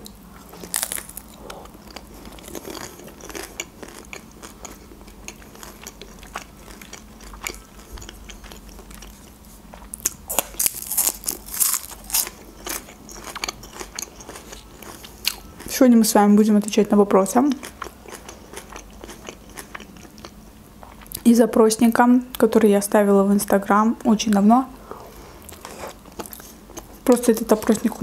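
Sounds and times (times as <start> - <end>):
wet chewing clicks and crackles: 0.0 - 15.8, 17.5 - 21.2.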